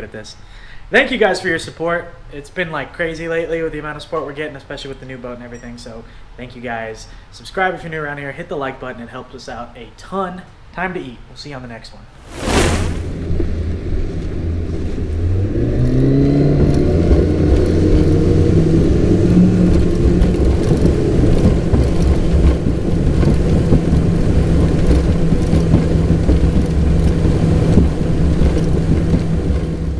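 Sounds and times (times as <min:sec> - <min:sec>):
boat motor: 0:13.2 - 0:29.9.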